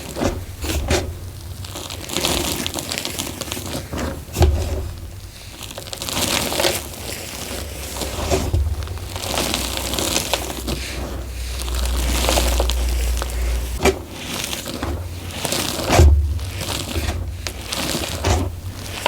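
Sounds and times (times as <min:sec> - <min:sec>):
chalk crunching in a bowl: 0:05.2 - 0:19.0.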